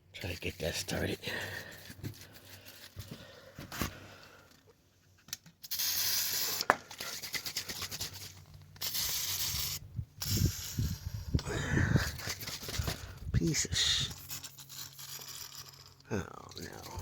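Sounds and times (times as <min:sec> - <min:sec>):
aerosol can spraying: 0:05.7 - 0:06.7, 0:08.8 - 0:11.0.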